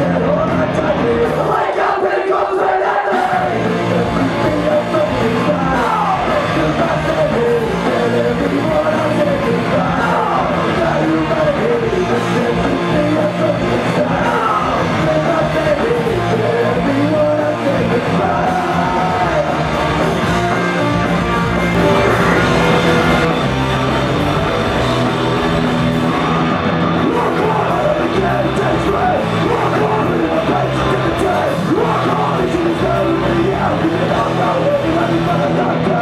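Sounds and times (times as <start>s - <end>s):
person singing: 0.0s - 23.4s, 27.0s - 36.0s
loud rock guitars: 0.0s - 36.0s.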